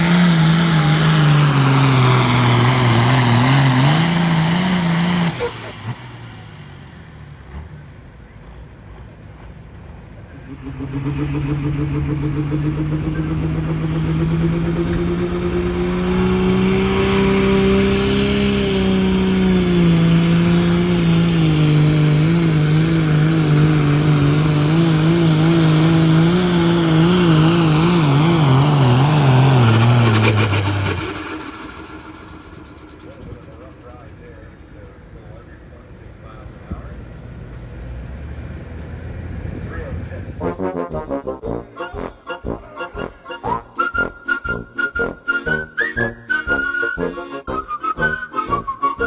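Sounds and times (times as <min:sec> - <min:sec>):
tractor engine at full throttle: 0:00.0 - 0:49.0.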